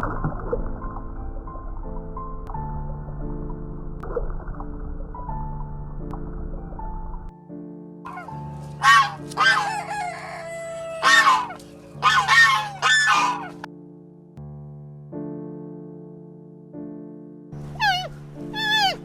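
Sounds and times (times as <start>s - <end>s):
soft background music chords: 0.0s - 19.0s
chickens calling harshly: 8.1s - 13.7s, 17.8s - 19.0s.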